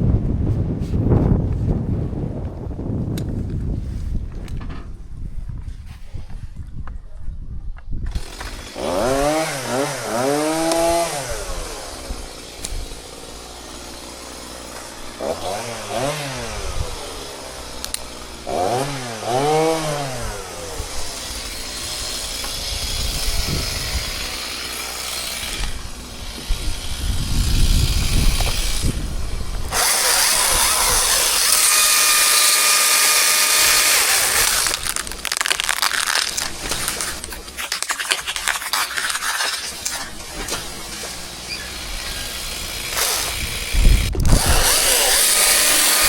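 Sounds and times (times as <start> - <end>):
chainsaw revving and running: 8.1 - 46.0
cracking and rustling: 29.7 - 43.5.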